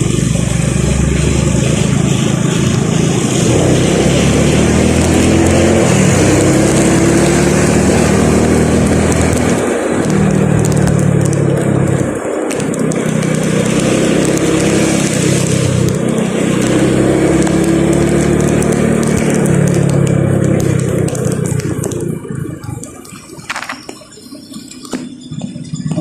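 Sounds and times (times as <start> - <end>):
tyres hissing on wet road: 0.0 - 25.1
vehicle engine hum: 0.0 - 26.0.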